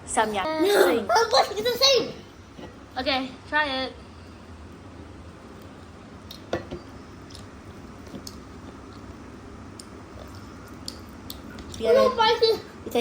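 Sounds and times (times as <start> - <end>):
person chewing food: 7.2 - 9.1, 9.7 - 11.8.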